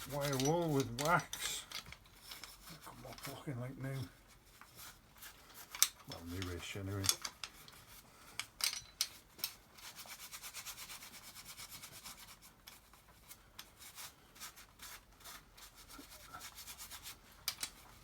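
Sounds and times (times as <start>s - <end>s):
wire wool scrubbing metal: 0.0s - 8.1s.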